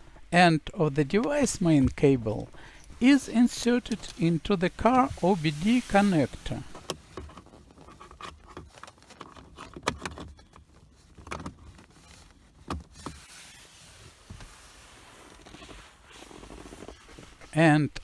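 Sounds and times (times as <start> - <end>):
faint steady hiss: 0.0 - 7.8, 12.0 - 18.0.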